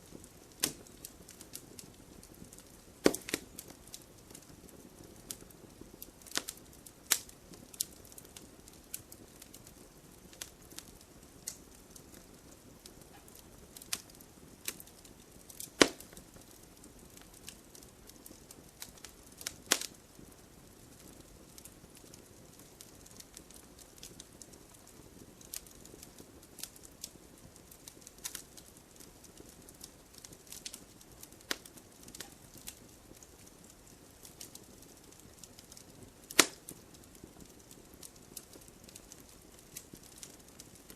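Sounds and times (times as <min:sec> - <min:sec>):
campfire crackling: 0:00.0 - 0:40.9
wood popping: 0:02.6 - 0:04.4, 0:15.5 - 0:16.3, 0:36.3 - 0:36.8.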